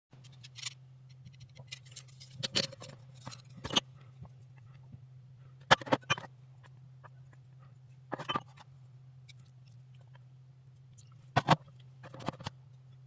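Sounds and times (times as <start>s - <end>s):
kitchen clicks and scrapes: 0.2s - 3.9s
low steady hum: 0.2s - 13.0s.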